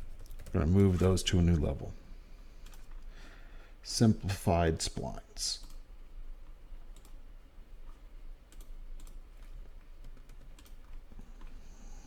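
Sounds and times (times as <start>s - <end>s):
low steady hum: 0.0s - 12.0s
computer keyboard clicks: 0.1s - 0.9s, 2.6s - 2.9s, 6.9s - 7.2s, 7.9s - 11.5s.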